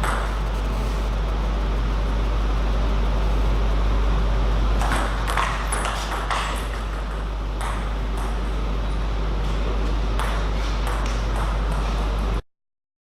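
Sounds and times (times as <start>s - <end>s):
steady low hum: 0.0s - 12.4s
table tennis balls clicking: 4.8s - 8.5s.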